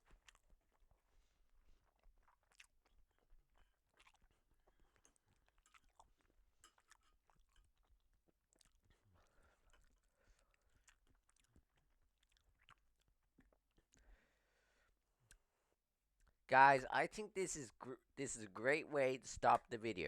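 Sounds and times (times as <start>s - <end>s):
wet chewing mouth clicks: 0.1s - 14.1s.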